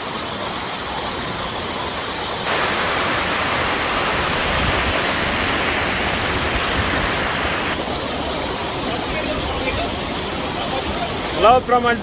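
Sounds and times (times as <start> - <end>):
waterfall roaring: 2.2 - 11.5.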